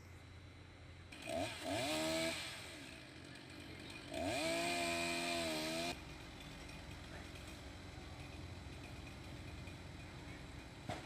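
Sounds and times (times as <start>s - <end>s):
chainsaw engine revving: 1.1s - 6.0s.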